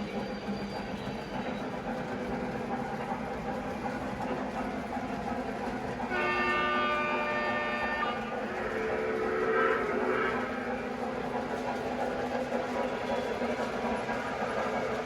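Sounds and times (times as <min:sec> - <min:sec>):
train running: 0:00.0 - 0:15.0
train horn chord: 0:06.0 - 0:10.5.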